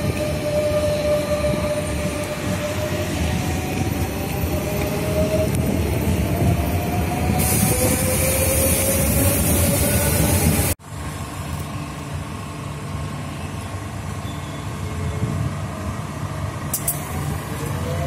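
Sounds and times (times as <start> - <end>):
train rumble: 0.0 - 18.0.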